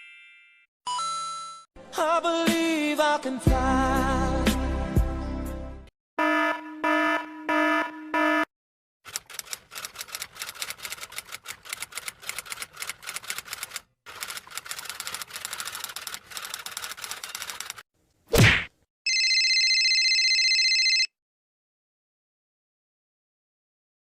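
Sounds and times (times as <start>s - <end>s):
rapid typewriter typing: 9.1s - 17.8s.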